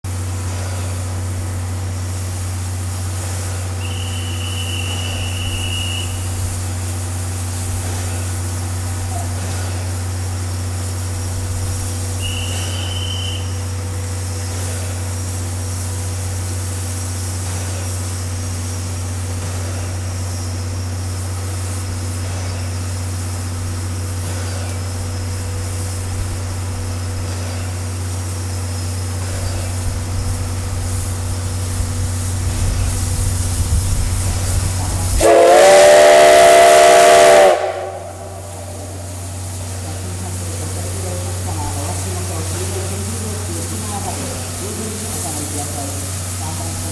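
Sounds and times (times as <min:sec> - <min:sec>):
steam locomotive rumble: 0:00.0 - 0:46.9
steam whistle blast: 0:03.7 - 0:06.5, 0:12.1 - 0:13.8, 0:35.1 - 0:39.6.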